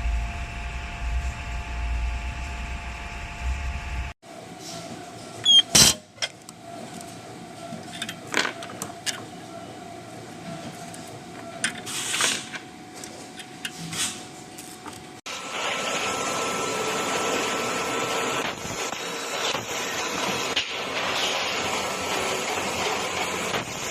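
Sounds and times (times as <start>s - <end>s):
whirring machine: 0.0s - 4.2s, 15.3s - 23.9s
factory machinery hum: 0.0s - 23.9s
machinery clanks and clicks: 18.4s - 23.9s.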